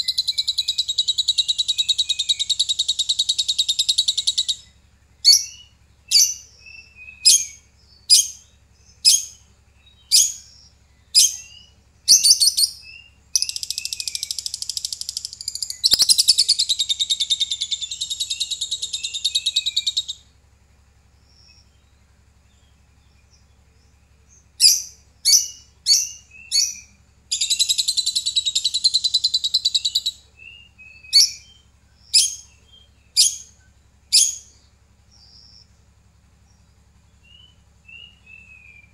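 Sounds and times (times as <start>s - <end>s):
lovebird chirping and chattering: 0.0s - 20.2s, 24.6s - 34.6s.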